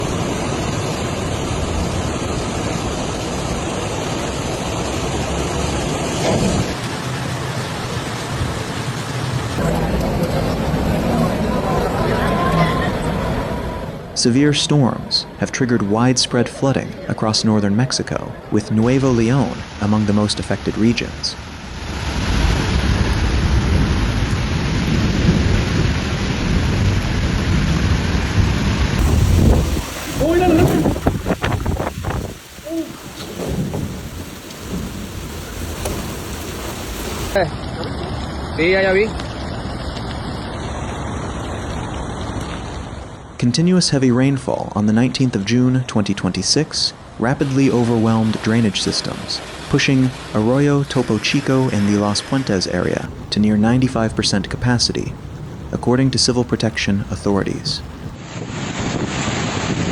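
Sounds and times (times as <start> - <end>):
heavy rain pouring: 0.0 - 14.1, 21.4 - 42.4, 53.0 - 58.2
low thunder rumble: 9.6 - 14.2, 22.4 - 37.4, 53.1 - 58.2
heavy rain hissing: 29.0 - 37.4, 53.0 - 58.2.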